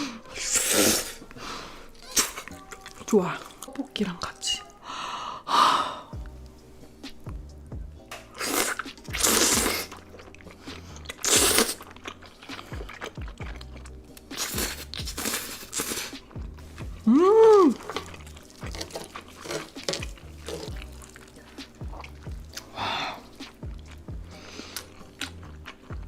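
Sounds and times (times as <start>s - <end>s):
quiet background music: 0.0s - 26.0s
chewing: 1.9s - 4.3s, 8.3s - 26.0s
person humming: 16.9s - 18.0s.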